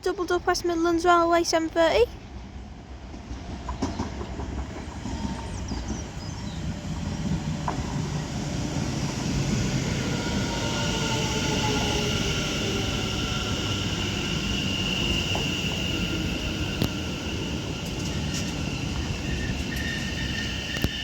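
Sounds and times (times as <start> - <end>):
electric train running on rails: 0.0 - 21.0
train motor whine: 5.0 - 21.0.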